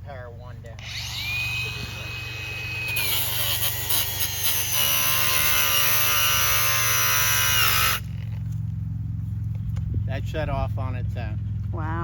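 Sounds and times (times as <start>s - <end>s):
angle grinder cutting metal: 0.8s - 8.1s.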